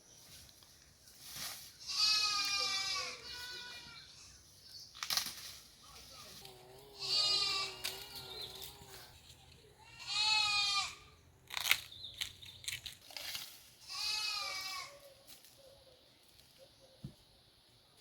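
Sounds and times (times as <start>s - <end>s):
goat bleating: 1.8s - 4.3s, 6.6s - 9.1s, 9.8s - 11.1s, 13.8s - 15.0s.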